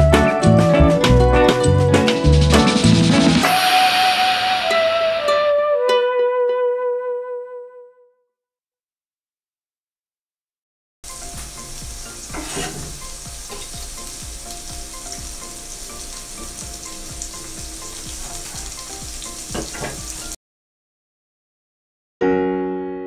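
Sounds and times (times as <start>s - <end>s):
onion and chilies sizzling in oil: 11.0s - 20.4s.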